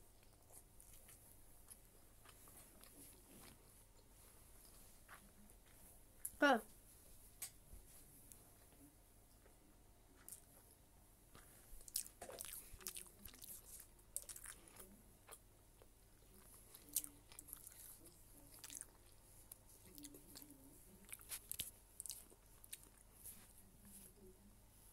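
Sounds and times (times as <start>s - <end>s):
person chewing noodles: 0.1s - 5.8s, 10.2s - 10.7s, 11.3s - 23.4s.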